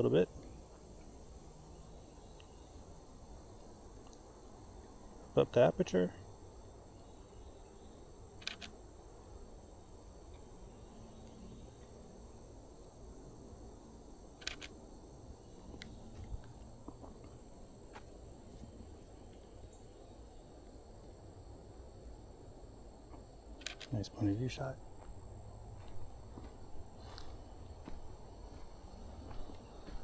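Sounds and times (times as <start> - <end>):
crickets droning: 0.0 - 30.0
camera shutter clicks: 8.4 - 8.7, 14.4 - 14.7, 23.6 - 23.9.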